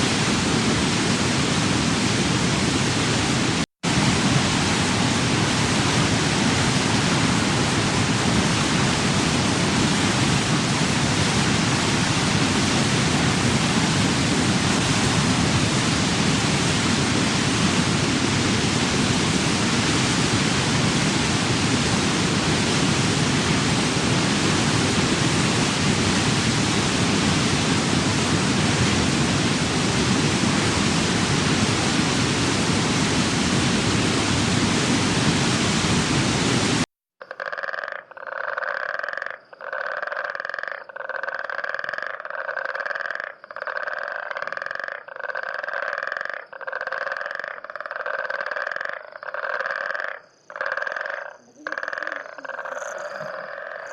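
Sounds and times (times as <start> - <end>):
waterfall rushing: 0.0 - 36.9.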